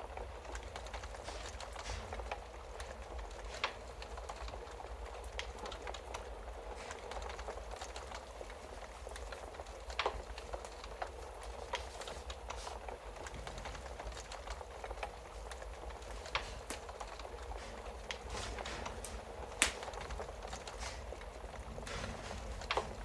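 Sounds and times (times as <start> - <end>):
wood fire crackling and popping: 0.0 - 23.0.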